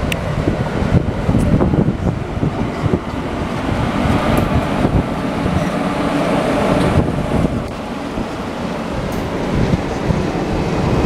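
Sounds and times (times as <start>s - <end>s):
electric locomotive running noise: 0.0s - 11.0s
train wheels rumbling on rails: 0.0s - 11.0s.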